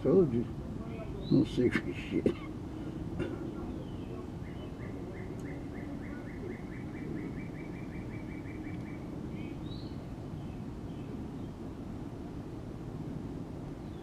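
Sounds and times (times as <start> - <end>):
low outdoor rumble: 0.0 - 14.0
bird chirping: 0.9 - 1.7, 3.2 - 11.7.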